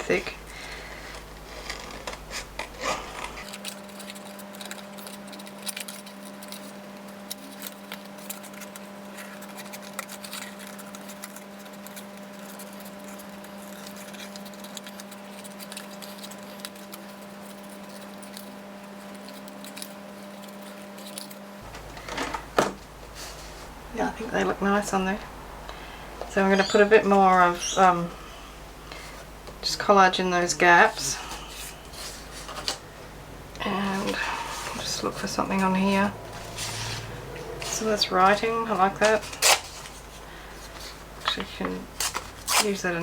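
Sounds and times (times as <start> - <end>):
steady low hum: 0.0 - 5.6, 21.4 - 43.0
scissors cutting thick paper: 0.2 - 21.9, 33.6 - 43.0.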